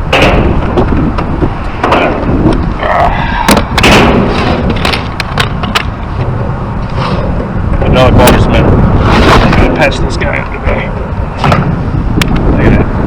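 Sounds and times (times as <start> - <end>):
steady low rumble: 0.0 - 13.0
sharp clacks and knocks: 3.5 - 6.5.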